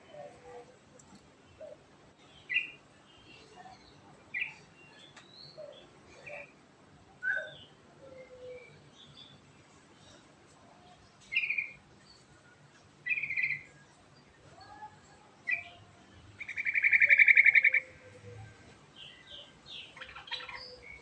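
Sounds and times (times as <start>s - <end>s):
bird singing: 1.5s - 6.5s, 7.2s - 9.4s, 11.2s - 12.3s, 13.0s - 21.0s.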